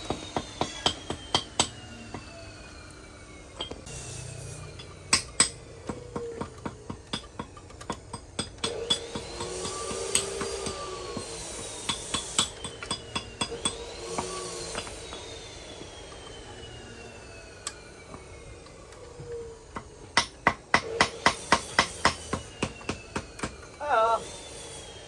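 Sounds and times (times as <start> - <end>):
tools knocking on metal: 4.8 - 11.3.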